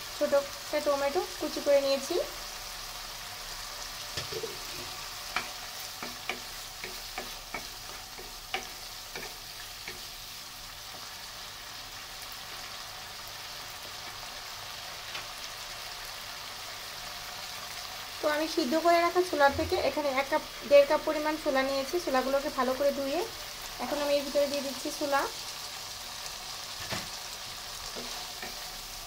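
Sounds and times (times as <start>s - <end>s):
masala sizzling in oil: 0.0s - 29.0s
spatula clicking against pan: 5.3s - 10.1s.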